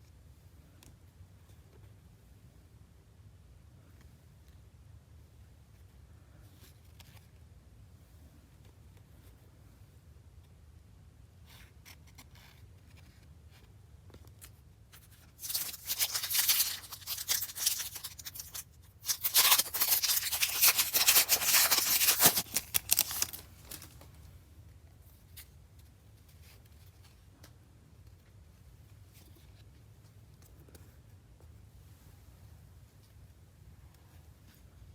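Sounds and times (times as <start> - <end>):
card pack wrapper crinkling: 15.0 - 24.0.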